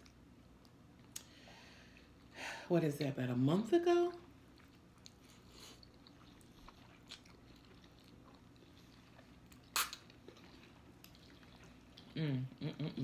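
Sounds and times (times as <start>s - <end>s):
faint chewing of noodles: 4.1s - 13.0s.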